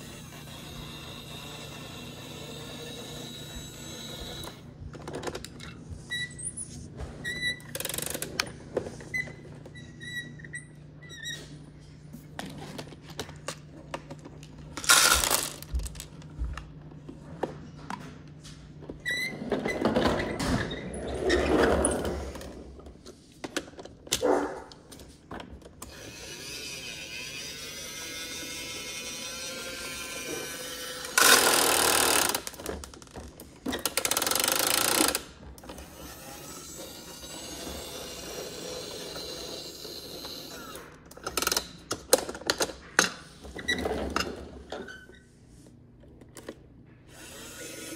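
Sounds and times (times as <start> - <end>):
small motor whining: 0.0 - 4.6, 25.8 - 32.6, 34.2 - 41.0, 47.1 - 47.9
toy plastic gears ratcheting: 0.0 - 4.6, 7.6 - 8.5, 14.8 - 16.0, 25.8 - 33.1, 33.7 - 42.0.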